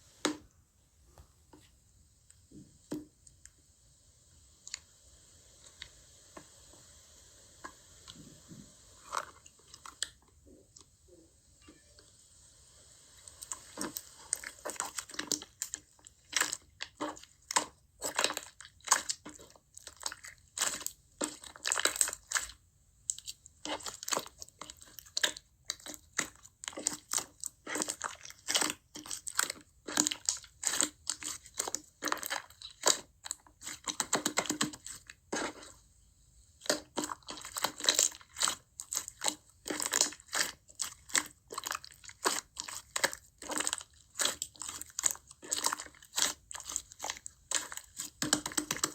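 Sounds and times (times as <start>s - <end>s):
slime crunching and popping: 13.4s - 35.7s, 36.6s - 48.9s.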